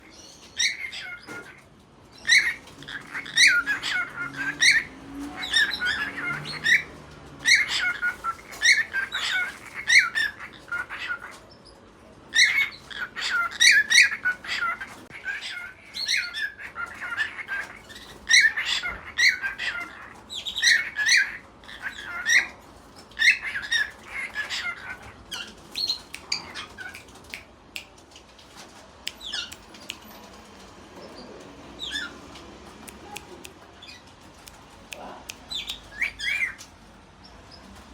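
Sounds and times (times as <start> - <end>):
cockatiel chirping and squawking: 0.1 - 11.4, 12.3 - 27.1, 31.8 - 32.2, 35.5 - 36.7.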